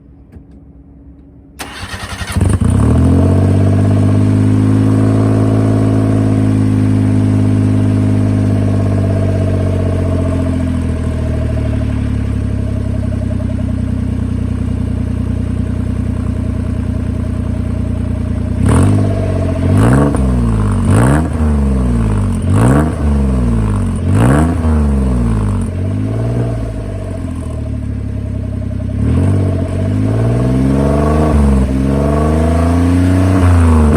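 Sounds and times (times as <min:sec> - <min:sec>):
small engine starting and idling: 0:01.6 - 0:04.4
engine revving: 0:01.6 - 0:14.4, 0:16.0 - 0:33.9.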